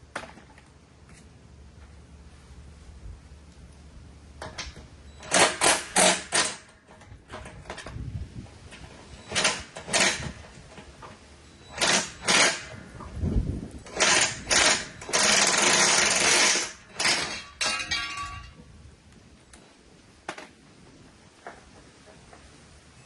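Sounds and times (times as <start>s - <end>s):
power tool bursts: 5.2s - 6.7s, 9.2s - 10.5s, 11.6s - 12.8s, 13.8s - 17.8s.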